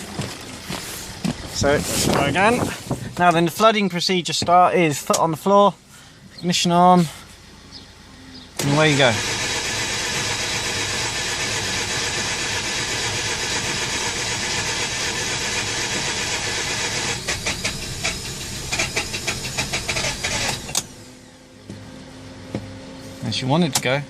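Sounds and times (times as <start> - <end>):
engine cranking on starter: 8.6 - 21.0.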